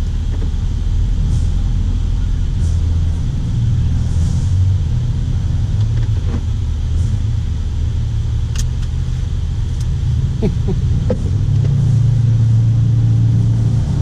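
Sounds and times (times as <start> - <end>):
car engine idling: 0.0 - 14.0
sharp click: 8.5 - 8.9.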